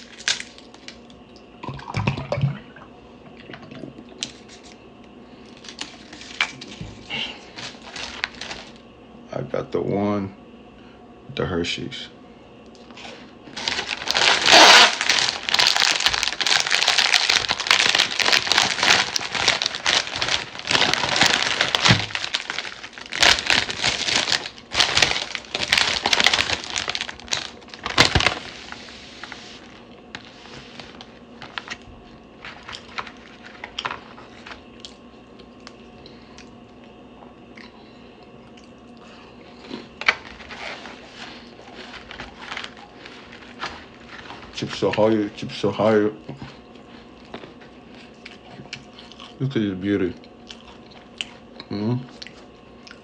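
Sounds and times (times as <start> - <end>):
plastic packaging crinkling: 0.0 - 1.0, 5.5 - 6.7, 7.5 - 8.8, 13.0 - 34.6, 40.0 - 45.3.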